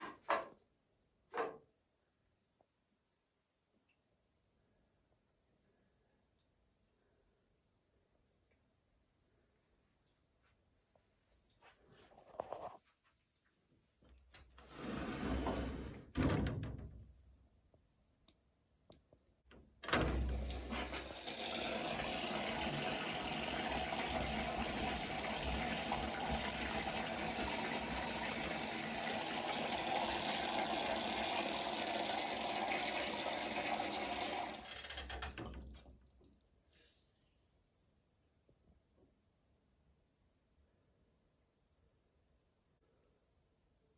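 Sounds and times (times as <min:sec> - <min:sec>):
shower spray running: 0:20.5 - 0:34.6.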